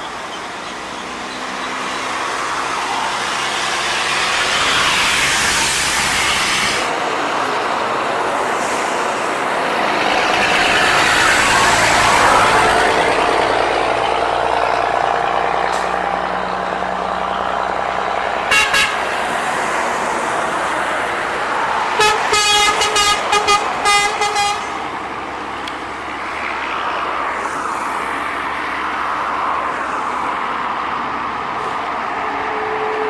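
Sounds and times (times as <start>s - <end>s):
truck passing: 0.0s - 33.0s
truck horn short toots: 18.5s - 19.1s, 22.0s - 24.8s.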